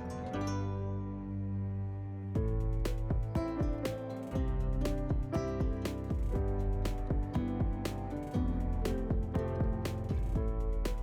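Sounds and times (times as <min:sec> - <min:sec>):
instrumental music with drum beat: 0:02.4 - 0:11.0.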